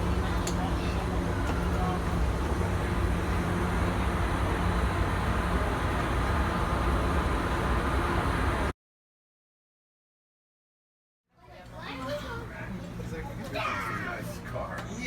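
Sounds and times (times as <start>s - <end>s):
locomotive engine rumbling: 0.0s - 8.7s.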